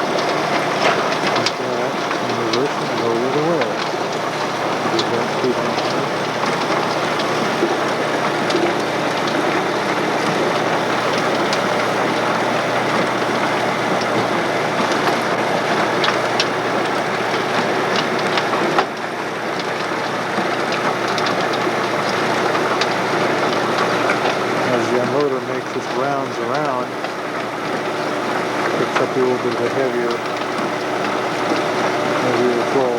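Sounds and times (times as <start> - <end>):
farm machinery running: 0.0 - 32.9.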